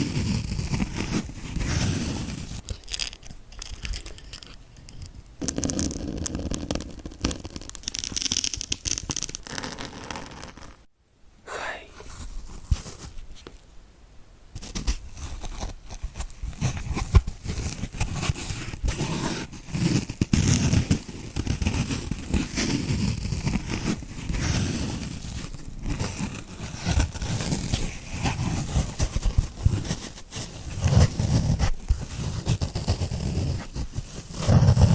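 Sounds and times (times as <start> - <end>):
sponge crackling and crunching: 14.6 - 34.9.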